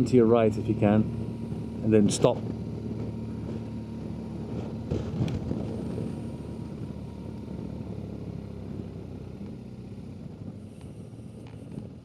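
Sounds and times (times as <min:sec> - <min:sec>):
motorcycle engine hum: 0:00.0 - 0:12.0
wind noise on microphone: 0:04.4 - 0:07.0, 0:10.1 - 0:12.0.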